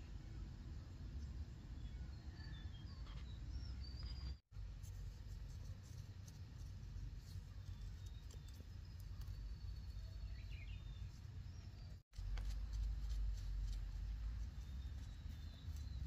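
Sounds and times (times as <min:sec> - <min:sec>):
faint bird chirps: 0:01.1 - 0:04.4
steady low rumble: 0:04.5 - 0:16.0.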